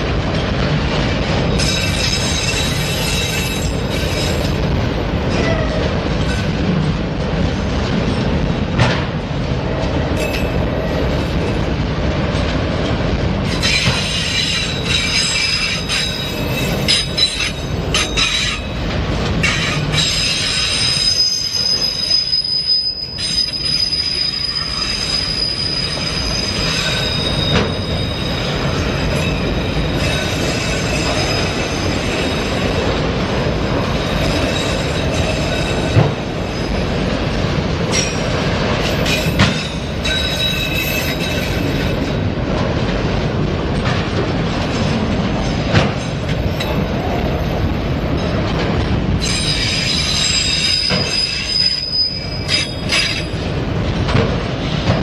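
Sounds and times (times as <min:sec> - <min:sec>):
steel wheels rumbling on rail: 0:00.0 - 0:55.0
high wheel squeal: 0:13.5 - 0:18.7, 0:19.4 - 0:32.6, 0:39.0 - 0:42.2, 0:49.2 - 0:53.5.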